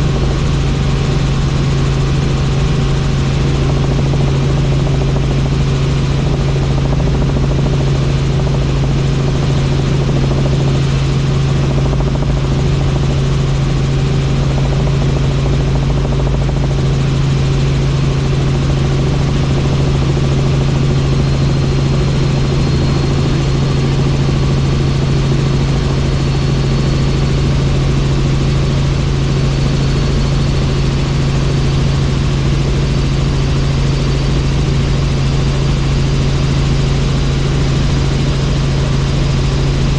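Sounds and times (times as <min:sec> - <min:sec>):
helicopter in flight: 0:00.0 - 0:39.9.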